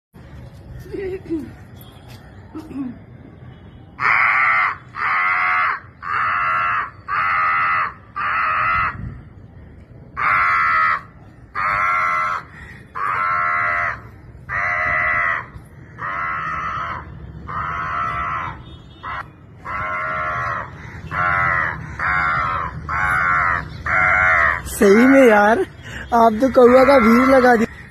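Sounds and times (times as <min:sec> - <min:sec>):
woman imitating crow caws: 0:26.5 - 0:27.8.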